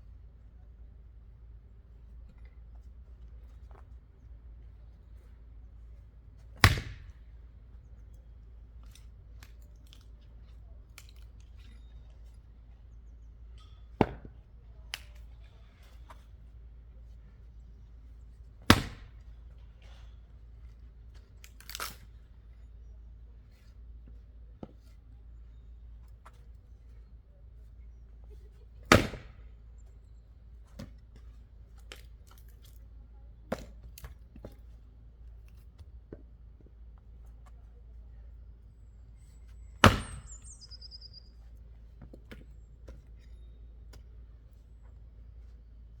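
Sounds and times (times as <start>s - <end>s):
axe chopping into wood: 6.6s - 7.2s, 18.6s - 19.2s, 28.9s - 29.4s, 39.8s - 40.4s
sharp wood crack: 6.6s - 7.2s, 18.6s - 19.3s, 28.9s - 29.4s, 39.8s - 40.4s.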